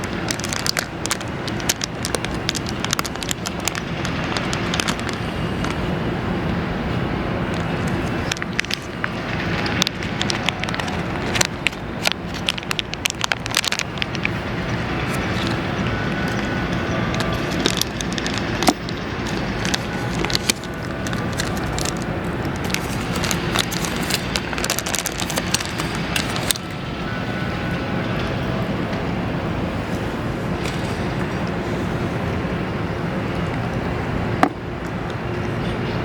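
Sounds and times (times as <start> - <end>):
sharp crackles and clicks: 0.0 - 5.8, 7.5 - 27.0
outdoor background noise: 0.0 - 36.0.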